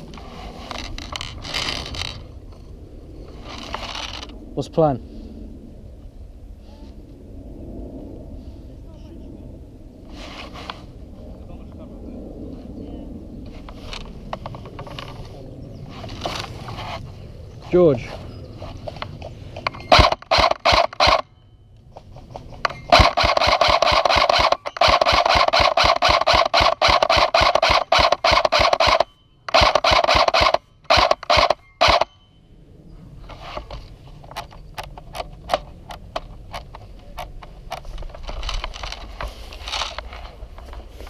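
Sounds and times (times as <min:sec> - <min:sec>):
airsoft gun firing bursts: 0:19.9 - 0:21.2, 0:22.9 - 0:32.1.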